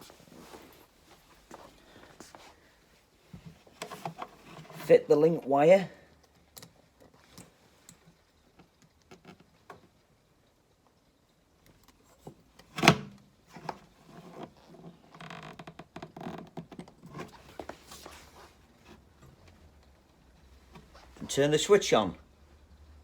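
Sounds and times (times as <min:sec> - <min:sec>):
small clicks and rattles: 0:06.1 - 0:12.6.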